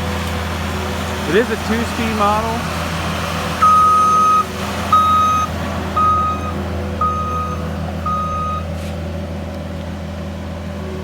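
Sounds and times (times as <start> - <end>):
diesel engine running: 0.0 - 11.0
backup alarm beeping: 3.6 - 8.7.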